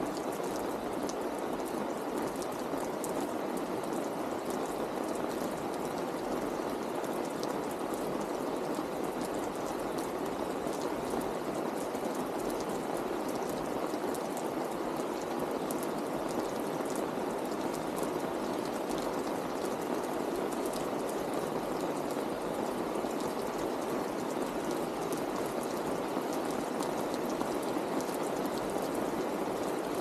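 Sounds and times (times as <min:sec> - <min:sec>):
steady rain: 0:00.0 - 0:30.0.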